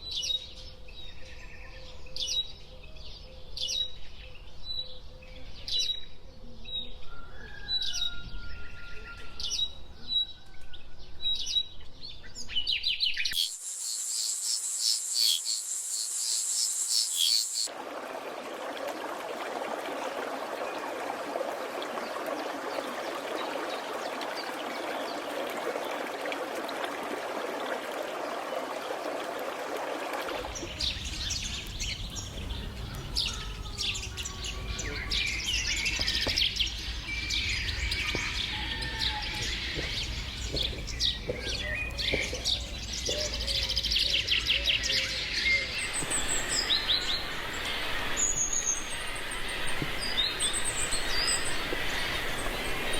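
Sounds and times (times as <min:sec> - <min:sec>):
birds chirping and whistling: 0:13.0 - 0:17.7, 0:30.5 - 0:52.9
insects buzzing: 0:13.4 - 0:17.7, 0:45.8 - 0:52.9.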